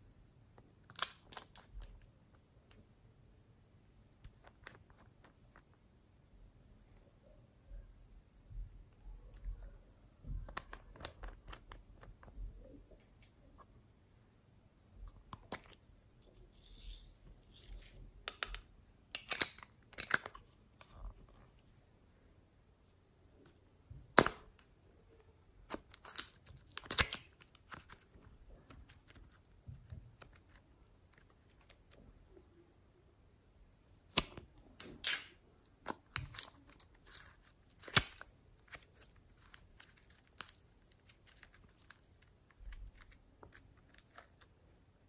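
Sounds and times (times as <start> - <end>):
slime popping and crackling: 25.6 - 31.9, 34.1 - 44.4.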